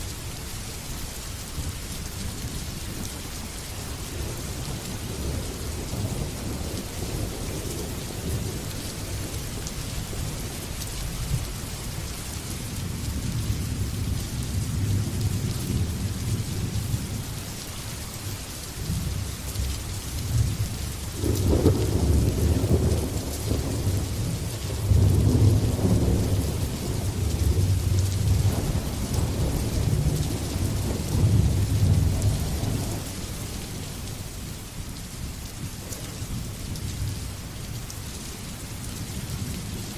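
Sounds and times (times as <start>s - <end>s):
heavy rain hissing: 0.0s - 39.9s
thunder rumbling: 20.3s - 33.2s.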